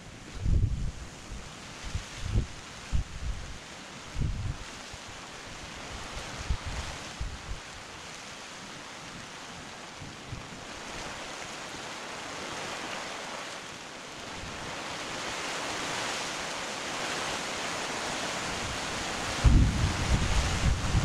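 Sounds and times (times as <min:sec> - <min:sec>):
wind bump on microphone: 0:00.3 - 0:04.7, 0:06.2 - 0:07.7, 0:18.6 - 0:21.0
rain falling: 0:01.8 - 0:21.0.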